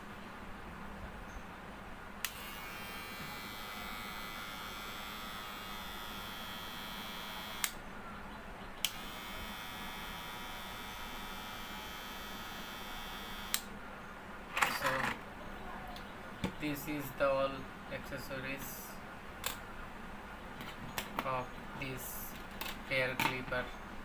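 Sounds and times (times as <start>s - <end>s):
hair clipper switch click: 2.2s - 2.5s, 7.6s - 7.8s, 8.8s - 9.1s, 13.4s - 13.7s
electric hair clipper buzzing: 2.2s - 7.8s, 8.8s - 13.7s.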